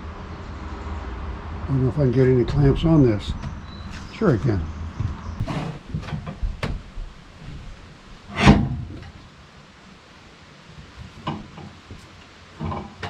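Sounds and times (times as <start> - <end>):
faint knocks: 5.0 - 7.8
metal clank with scrape: 8.3 - 9.2, 12.6 - 13.0.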